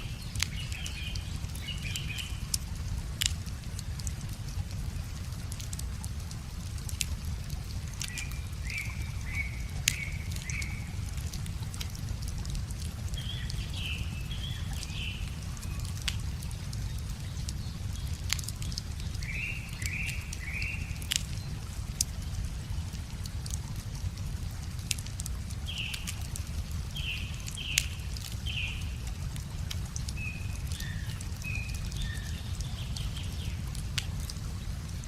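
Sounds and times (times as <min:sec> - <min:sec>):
wood fire crackling and popping: 0:00.2 - 0:35.0
songbird calling: 0:08.1 - 0:11.0, 0:19.2 - 0:21.2.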